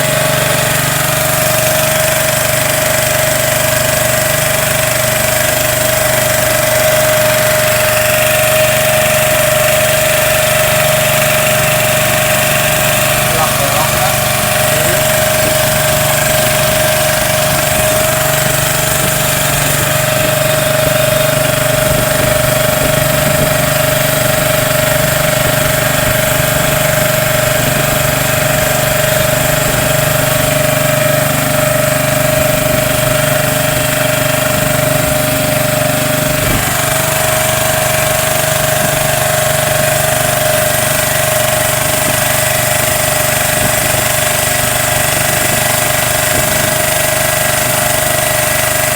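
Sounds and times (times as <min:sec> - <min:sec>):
small boat engine running: 0:00.0 - 0:48.9.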